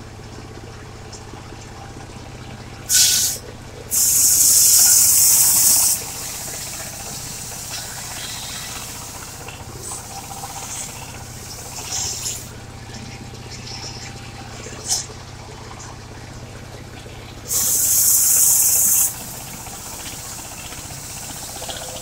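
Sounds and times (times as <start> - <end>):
sawmill engine humming: 0.0 - 22.0
loud high hiss: 2.9 - 9.3, 17.5 - 22.0.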